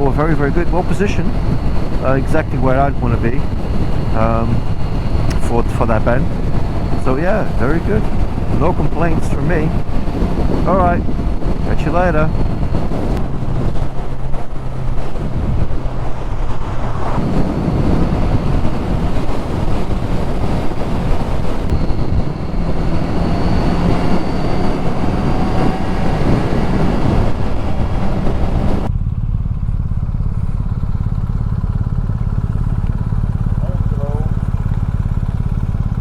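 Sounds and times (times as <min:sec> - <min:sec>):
heavy wind noise: 0:00.0 - 0:28.9
motorcycle engine running: 0:00.0 - 0:36.0
road rush: 0:00.0 - 0:36.0.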